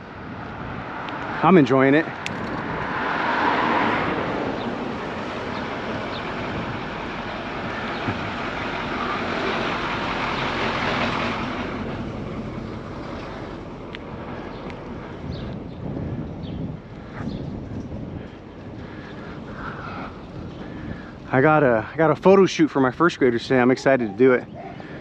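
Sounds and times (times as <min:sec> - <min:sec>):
wind on microphone: 0:00.0 - 0:25.0
bicycle tyre noise: 0:12.8 - 0:22.4.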